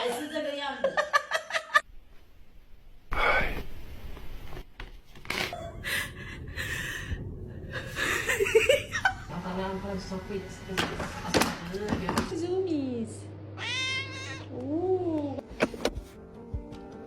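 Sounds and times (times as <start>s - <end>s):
person breathing: 5.8s - 8.3s
person laughing: 7.7s - 9.3s.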